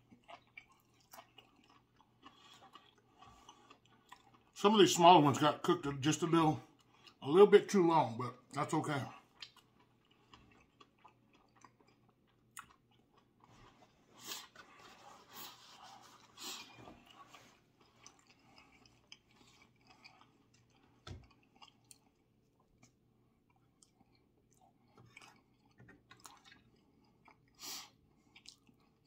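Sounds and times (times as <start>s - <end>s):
chewing and wet mouth sounds: 0.0s - 4.7s, 6.6s - 7.8s, 8.4s - 29.0s.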